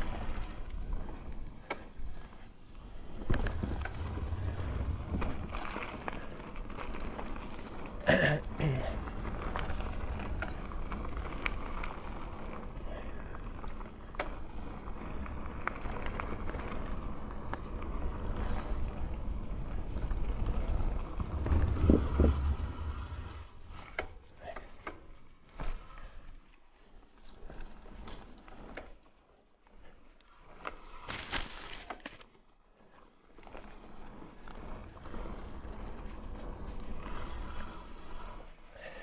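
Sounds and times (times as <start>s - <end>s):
bike rattling over ground: 0.0s - 29.2s, 30.3s - 39.0s
bike tyres rumbling on trail: 0.0s - 39.0s
wind on microphone: 3.2s - 5.8s, 18.8s - 24.3s.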